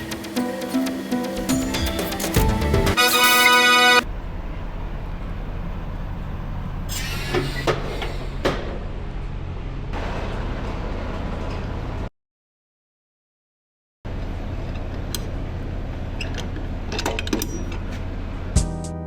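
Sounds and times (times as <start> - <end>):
background music: 0.0 - 4.0, 18.6 - 19.0
diesel truck engine drone: 0.0 - 12.1, 14.1 - 18.6.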